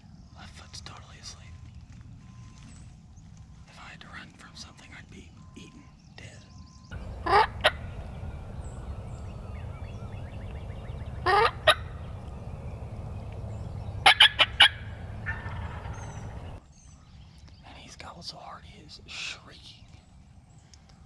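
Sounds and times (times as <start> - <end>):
low rumble: 7.0 - 16.6
turkey gobbling: 7.0 - 16.6.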